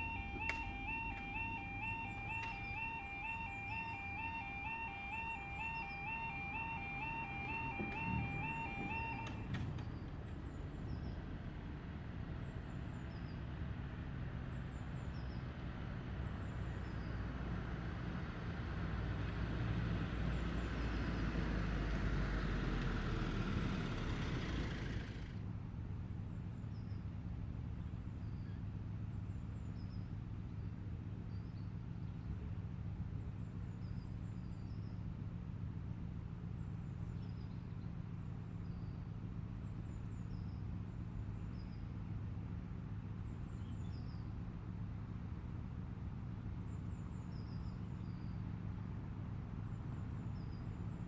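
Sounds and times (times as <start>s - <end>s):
road vehicle passing: 0.0s - 25.8s.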